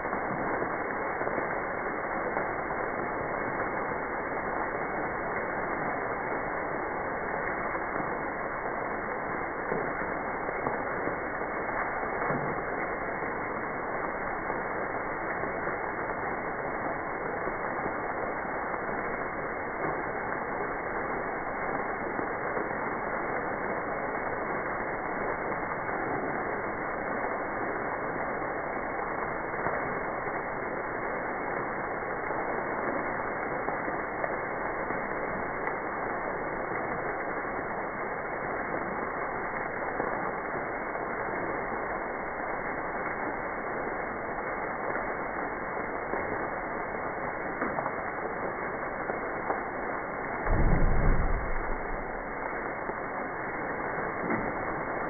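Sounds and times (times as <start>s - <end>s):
steady noise: 0.0s - 10.1s, 50.2s - 53.6s
low thump: 50.5s - 52.4s.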